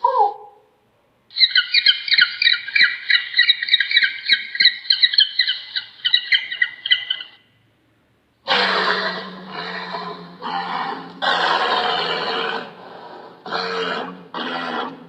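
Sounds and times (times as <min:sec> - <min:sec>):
bird chattering squawks: 0:01.3 - 0:07.4.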